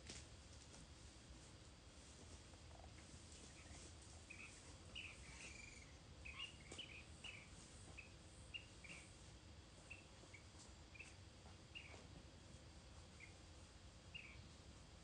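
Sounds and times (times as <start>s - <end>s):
background hiss: 0.0s - 15.0s
faint bird chirping: 2.6s - 12.2s, 13.0s - 15.0s.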